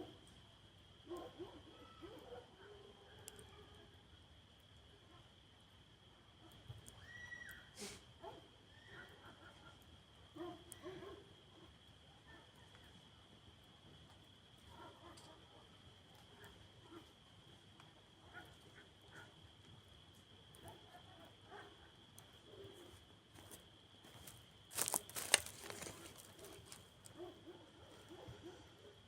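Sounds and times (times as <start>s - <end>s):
campfire crackling and popping: 24.7s - 27.1s.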